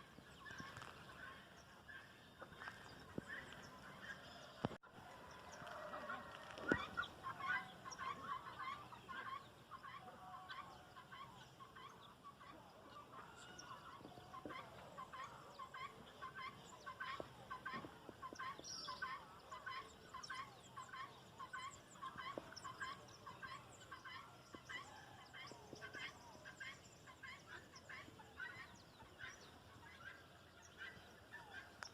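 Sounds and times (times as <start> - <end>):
guineafowl calling: 0.0 - 31.9.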